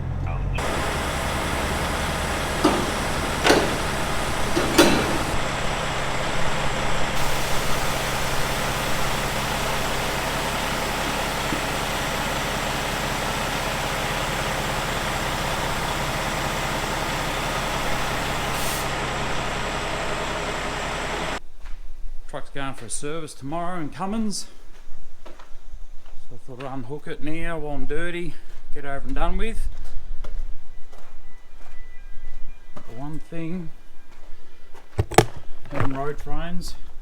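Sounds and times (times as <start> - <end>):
truck diesel engine running: 0.0 - 21.4
air brake hisses: 0.6 - 21.4.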